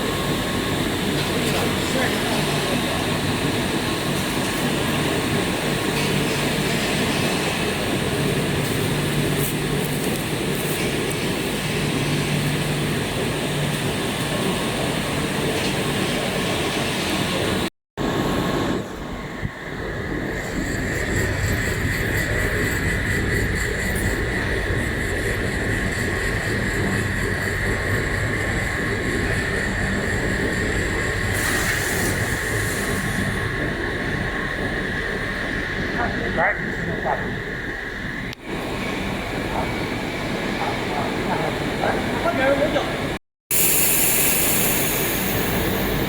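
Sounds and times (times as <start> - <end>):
machinery noise with low hum: 0.0 - 46.0
hiss: 31.3 - 33.4, 43.5 - 46.0.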